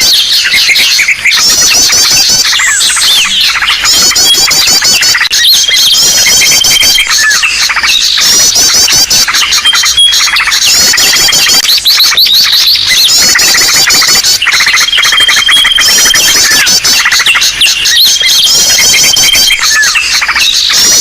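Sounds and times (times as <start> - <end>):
many small birds calling: 0.0 - 21.0.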